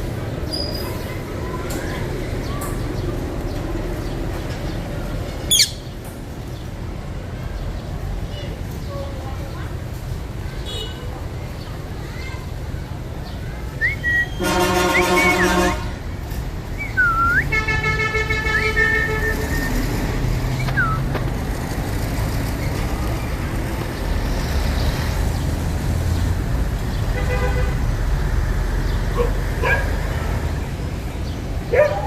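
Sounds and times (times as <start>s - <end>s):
road traffic rumble: 0.0s - 32.0s
parrot chirping: 5.5s - 5.9s
parrot whistling: 13.8s - 15.6s, 16.8s - 17.6s, 18.6s - 19.9s, 20.6s - 21.1s.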